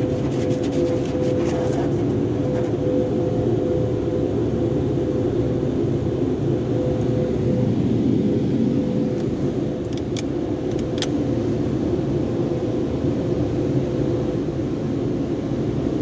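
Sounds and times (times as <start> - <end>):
car wash machinery running: 0.0 - 2.8
faint steady hum: 0.0 - 16.0.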